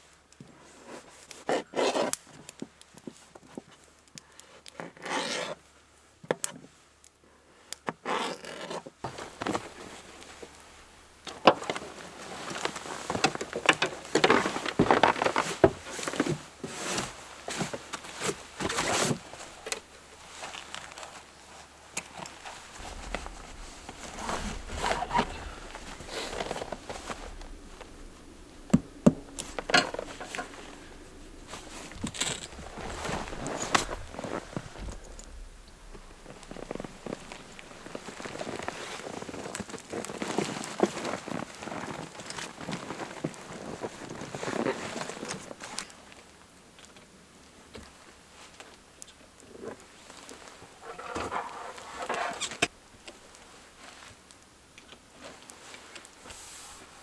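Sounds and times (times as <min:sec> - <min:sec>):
scraping and rubbing: 0:22.4 - 0:39.4.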